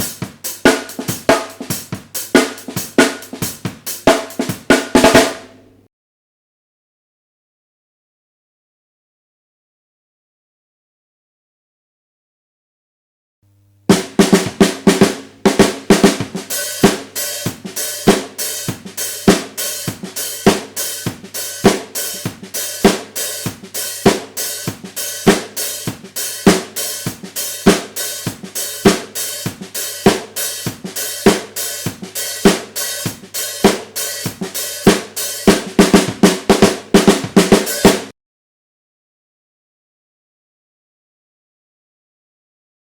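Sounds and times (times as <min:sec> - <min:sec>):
snare drum beat: 0:00.0 - 0:05.5, 0:13.9 - 0:38.1.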